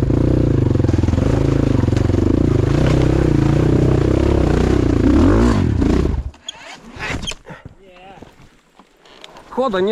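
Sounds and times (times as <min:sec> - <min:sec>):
motorcycle engine revving: 0:00.0 - 0:06.6
clatter: 0:00.5 - 0:04.9.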